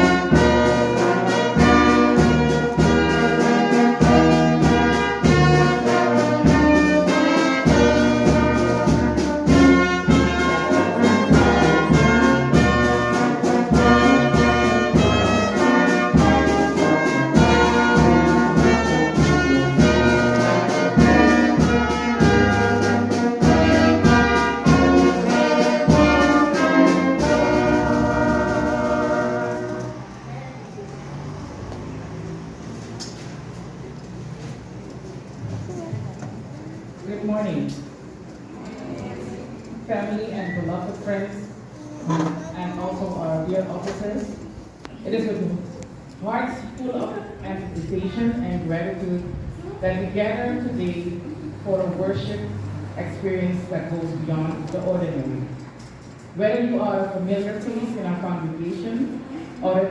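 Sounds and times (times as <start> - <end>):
brass band playing: 0.0 - 30.4.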